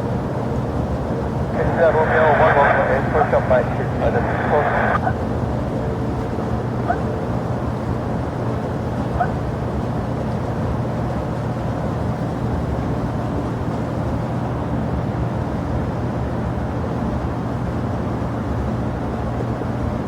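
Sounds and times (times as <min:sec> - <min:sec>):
jet aircraft rumble: 0:00.0 - 0:09.4.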